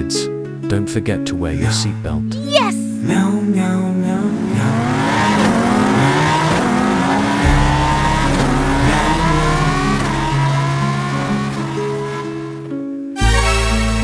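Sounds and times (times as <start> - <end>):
vehicle engine accelerating: 4.0 - 12.7
deep rumble: 7.4 - 11.4.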